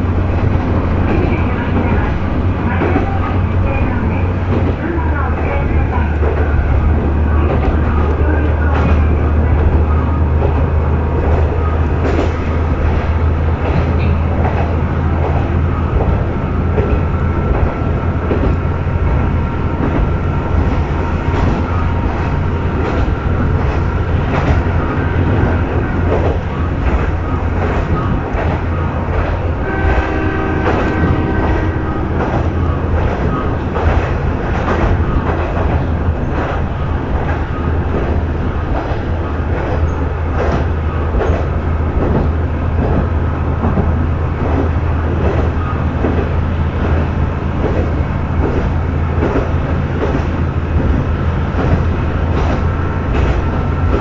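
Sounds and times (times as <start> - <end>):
railcar engine hum: 0.0 - 54.0
steady tone: 15.4 - 35.1.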